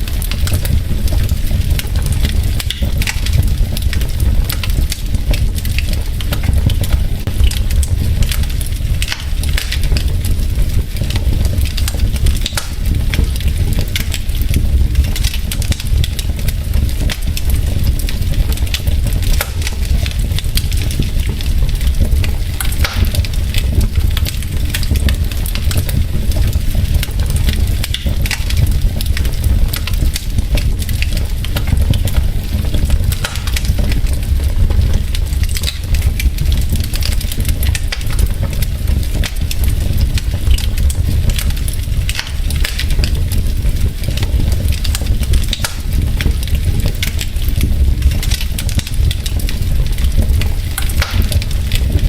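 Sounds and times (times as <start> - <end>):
logs crackling and popping: 0.0 - 52.0
low fire rumble: 0.0 - 52.0.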